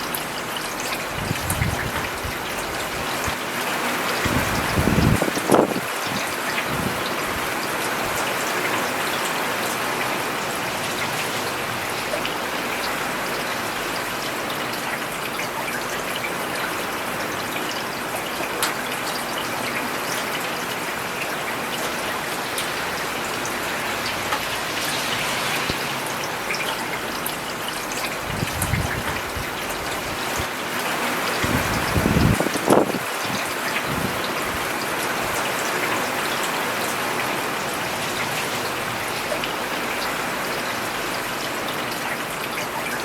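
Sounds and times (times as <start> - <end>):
rain on a paved road: 0.0 - 43.0
raindrop ticks and splashes: 0.0 - 43.0.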